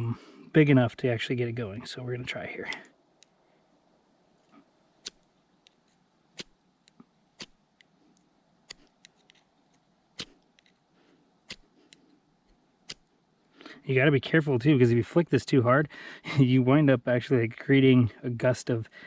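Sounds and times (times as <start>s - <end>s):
striker scraping flint rod: 4.4s - 10.8s, 11.5s - 13.1s.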